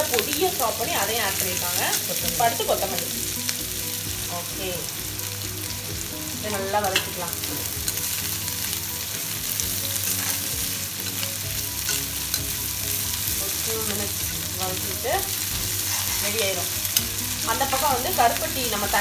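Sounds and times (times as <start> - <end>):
food sizzling in hot oil: 0.0 - 19.0
metal spatula scraping pan: 15.7 - 17.2.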